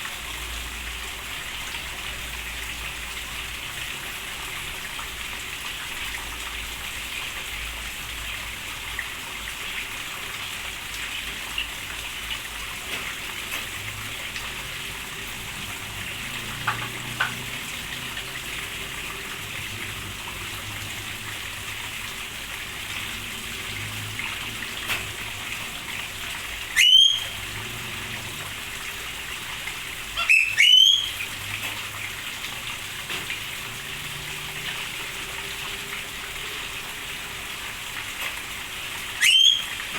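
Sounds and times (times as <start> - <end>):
steady rain: 0.0 - 39.9
bird calling loudly: 26.8 - 27.4, 30.1 - 31.3, 39.2 - 39.9.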